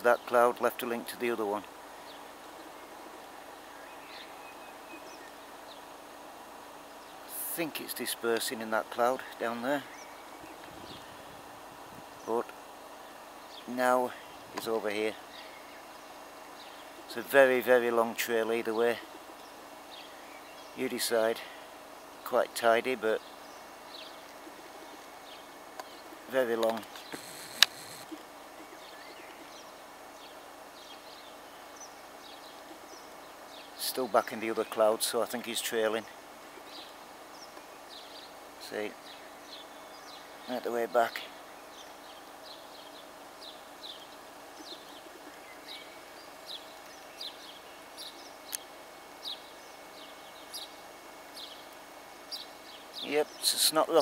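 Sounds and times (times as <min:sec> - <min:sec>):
steady outdoor hiss: 0:00.0 - 0:54.0
faint bird chirps: 0:01.9 - 0:05.9, 0:12.2 - 0:17.8, 0:23.1 - 0:53.8
sharp click: 0:26.6 - 0:28.1.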